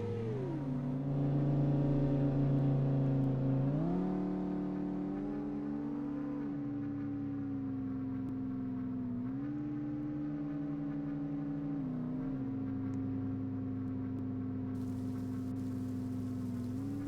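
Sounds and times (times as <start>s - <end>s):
car engine idling: 14.8s - 17.0s.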